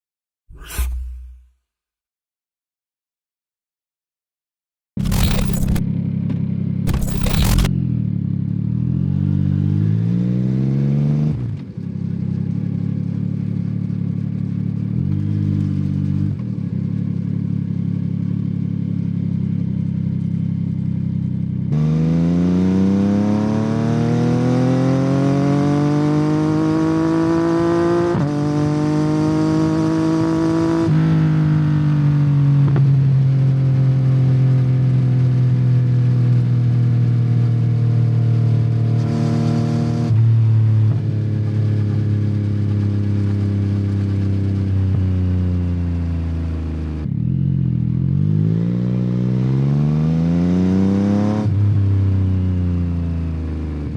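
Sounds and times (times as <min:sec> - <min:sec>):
motorcycle engine revving: 0:05.0 - 0:06.2, 0:06.9 - 0:11.6.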